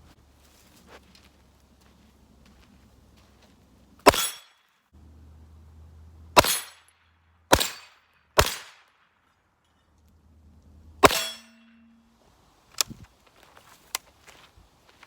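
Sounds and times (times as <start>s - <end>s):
gunshots: 4.0s - 4.5s, 6.4s - 6.9s, 7.5s - 9.1s, 11.0s - 11.6s
steel target ringing ping: 11.0s - 12.1s.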